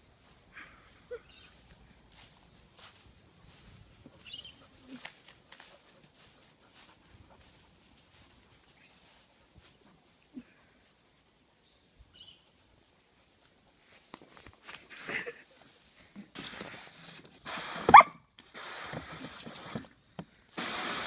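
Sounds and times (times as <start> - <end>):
bursts of hissing noise: 16.3 - 21.0.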